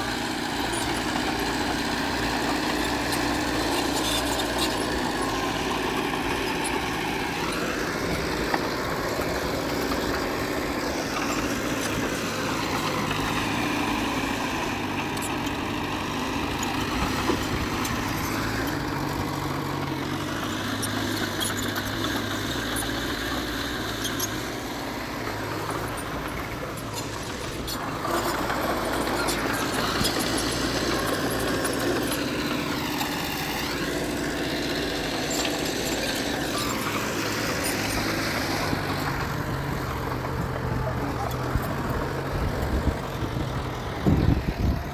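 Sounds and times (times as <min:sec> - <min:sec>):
diesel engine revving: 0:00.0 - 0:44.9.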